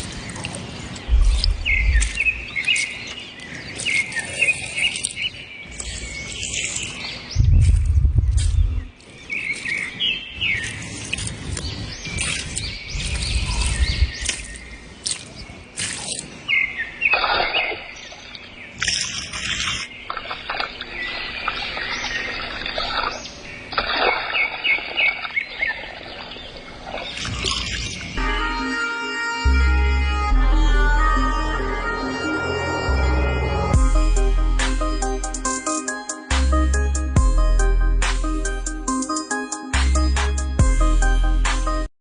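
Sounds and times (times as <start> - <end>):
low rumbles: 0.0 - 2.8, 7.3 - 9.0, 29.5 - 35.6
birds chirping: 0.0 - 41.9.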